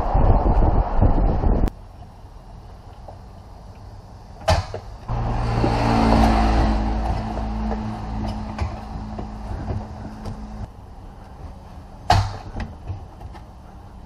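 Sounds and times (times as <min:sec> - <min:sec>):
car engine starting and idling: 0:01.8 - 0:14.0.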